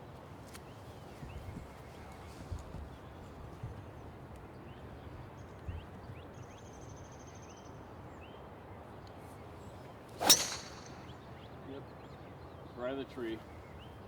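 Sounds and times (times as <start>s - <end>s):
golf club striking ball: 10.2s - 11.2s.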